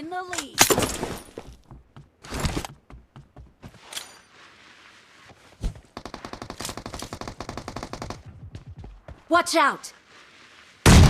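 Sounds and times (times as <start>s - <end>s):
rapid automatic gunfire: 6.0s - 8.3s.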